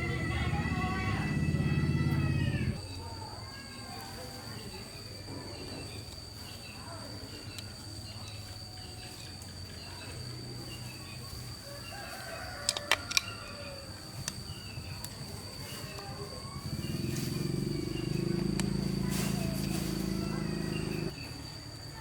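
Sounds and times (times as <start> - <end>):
bird calls: 0.0 - 2.8, 15.6 - 21.1.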